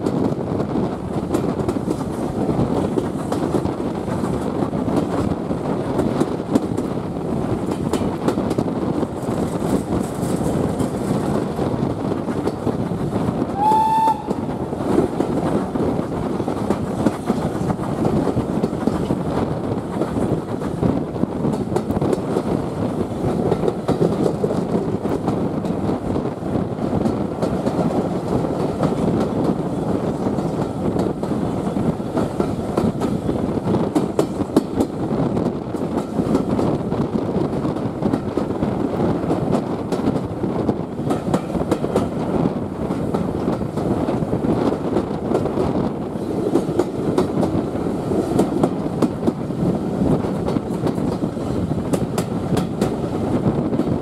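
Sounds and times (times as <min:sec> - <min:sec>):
train rumble: 0:00.0 - 0:54.0
wheels clattering over rail joints: 0:07.5 - 0:13.1.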